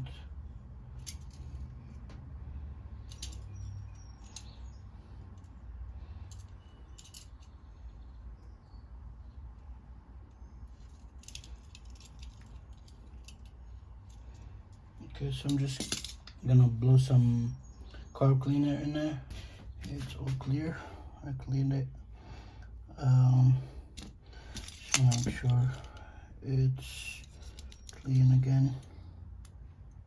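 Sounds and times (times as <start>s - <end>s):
metal parts clicking and tapping: 3.1s - 4.6s, 6.3s - 7.6s, 10.8s - 14.4s, 15.3s - 16.4s, 23.9s - 26.0s, 27.2s - 28.3s.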